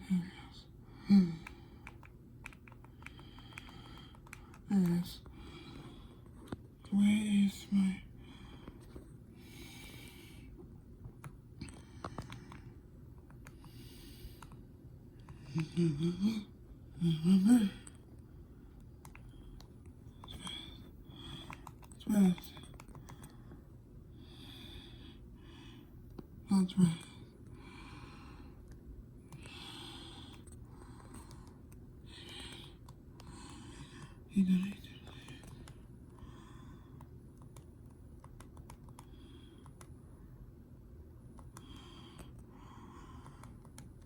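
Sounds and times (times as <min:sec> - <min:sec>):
ceiling fan humming: 0:00.0 - 0:44.0
person breathing: 0:02.9 - 0:06.6, 0:08.0 - 0:10.7, 0:11.6 - 0:14.6, 0:15.2 - 0:21.9, 0:22.6 - 0:26.0, 0:27.2 - 0:37.2, 0:41.5 - 0:43.8.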